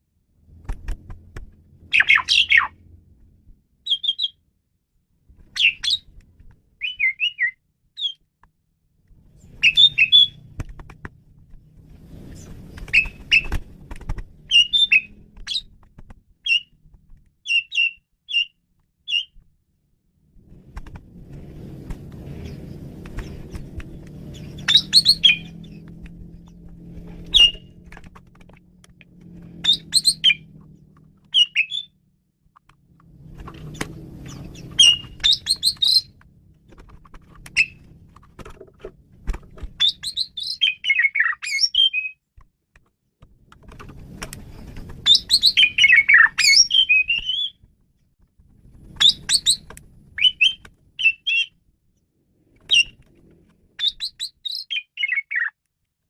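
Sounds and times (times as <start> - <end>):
starling singing: 1.9 - 2.8, 6.8 - 8.2, 9.5 - 10.4, 14.5 - 15.7, 24.4 - 25.8, 29.6 - 30.5, 31.3 - 32.0, 34.3 - 36.2, 37.6 - 37.8, 39.8 - 42.2, 45.0 - 47.6, 50.2 - 51.5, 53.8 - 55.6.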